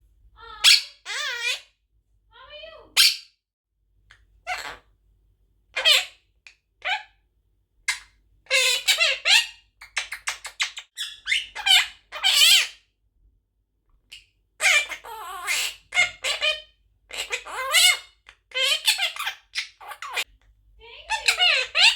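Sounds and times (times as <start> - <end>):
parakeet squawking and chattering: 0.4 - 1.7, 2.6 - 3.3, 4.5 - 4.8, 5.8 - 6.2, 7.9 - 12.8, 14.1 - 20.3, 21.0 - 21.9.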